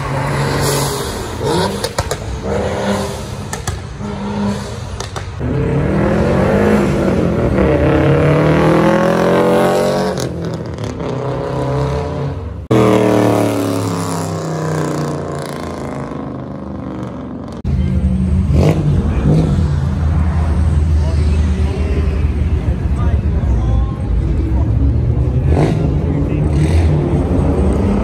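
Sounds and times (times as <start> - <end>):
car engine running hard: 0.0 - 28.0.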